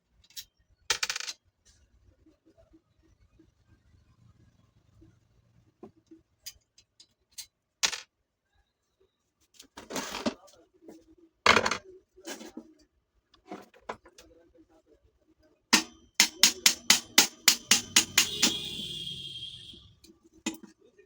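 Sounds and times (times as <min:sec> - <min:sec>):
metal-on-metal knocks: 0:15.8 - 0:18.8
high ringing of struck metal: 0:15.8 - 0:19.0.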